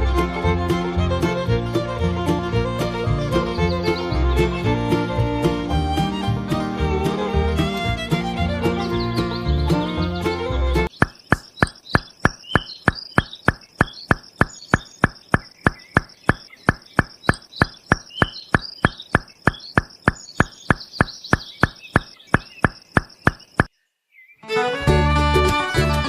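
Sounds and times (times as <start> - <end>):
faint high chirping: 8.7 - 24.4
steady knocking: 10.9 - 23.7.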